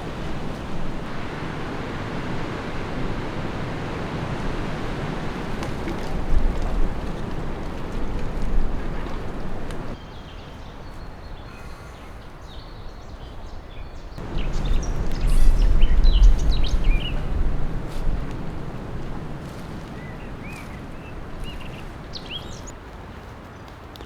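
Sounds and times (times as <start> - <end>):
wind buffeting microphone: 0.0 - 10.0, 14.2 - 22.7
strong wind through trees: 0.0 - 23.6
small birds chirping: 4.8 - 11.1, 14.0 - 22.7.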